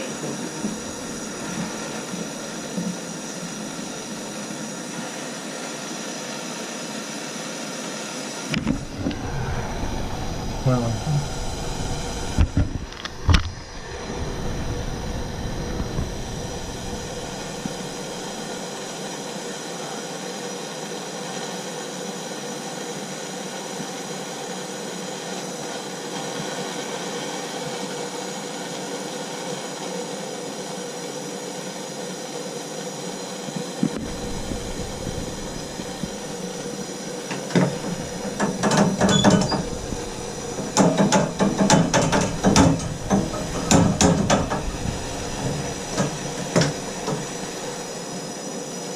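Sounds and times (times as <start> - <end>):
gas torch hissing: 0.0 - 7.2, 8.2 - 19.3, 33.8 - 48.9
sharp clicks and knocks: 33.9 - 47.9.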